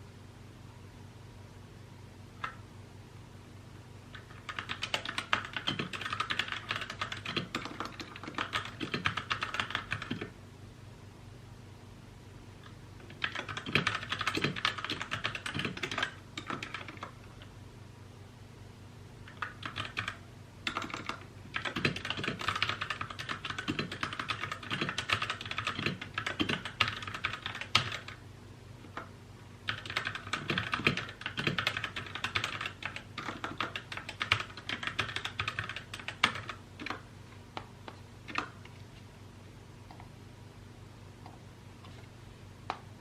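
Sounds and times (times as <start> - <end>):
faint low hum: 0.0 - 43.0
mechanical keyboard typing: 4.1 - 10.3, 13.0 - 17.5, 19.3 - 28.2, 29.7 - 37.0, 38.2 - 38.6.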